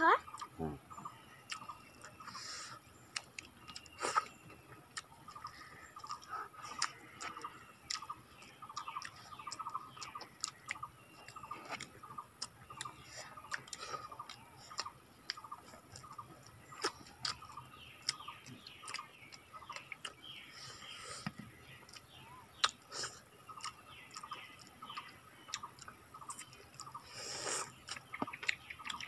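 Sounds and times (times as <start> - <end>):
wet mouth clicks of chewing: 0.2 - 29.0.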